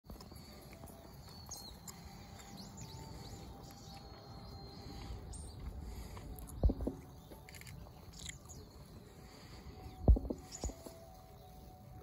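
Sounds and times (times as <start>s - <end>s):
high sweeping bird calls: 0.1s - 12.0s
steady low rumble: 4.5s - 7.6s, 8.8s - 11.0s.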